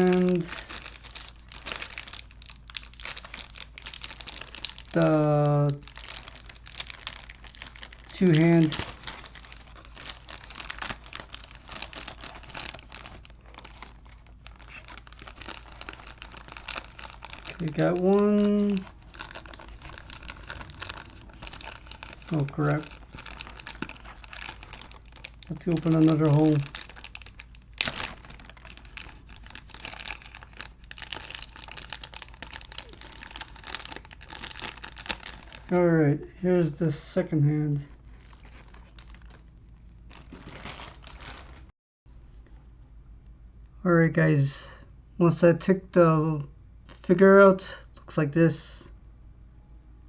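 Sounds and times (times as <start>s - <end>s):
plastic packaging crinkling: 0.0s - 35.8s, 37.8s - 41.7s.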